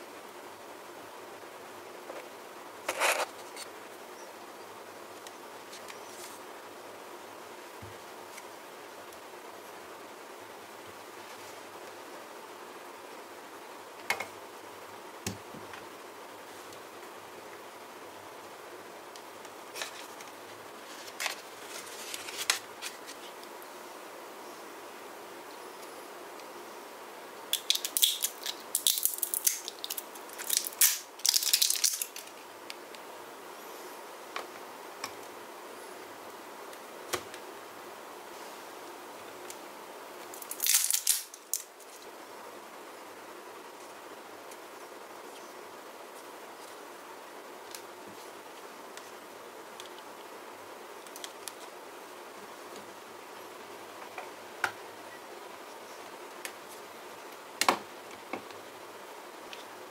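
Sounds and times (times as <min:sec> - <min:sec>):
steady low hiss: 0:00.0 - 0:59.9
plastic packaging crinkling: 0:27.6 - 0:32.4, 0:40.4 - 0:41.7.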